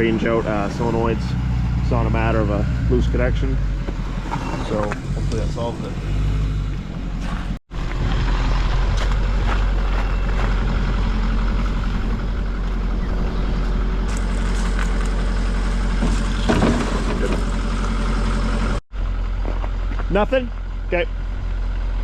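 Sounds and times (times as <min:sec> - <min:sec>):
vehicle engine idling: 0:00.0 - 0:22.0
short knocks and rattles: 0:15.8 - 0:17.9.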